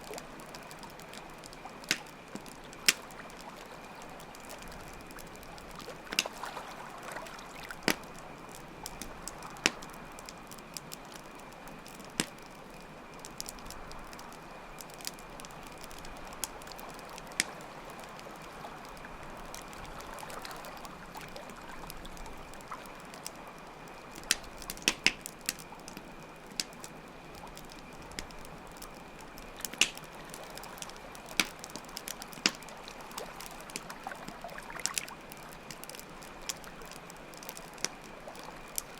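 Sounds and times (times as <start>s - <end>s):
flowing water: 0.0s - 10.6s, 29.5s - 38.9s
campfire crackling and popping: 0.0s - 38.9s.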